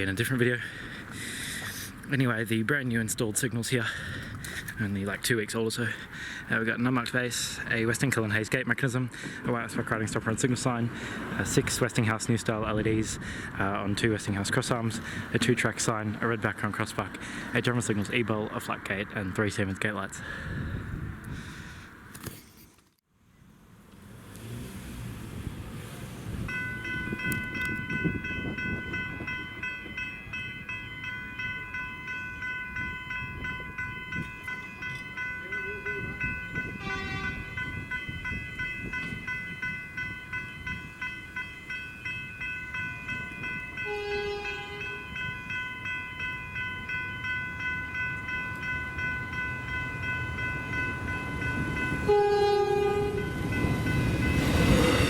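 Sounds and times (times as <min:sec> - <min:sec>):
low train rumble: 0:00.0 - 0:22.0, 0:23.4 - 0:55.0
level-crossing bells chiming: 0:26.5 - 0:55.0
train horn blasts: 0:36.8 - 0:37.6, 0:43.8 - 0:45.0, 0:52.0 - 0:53.4.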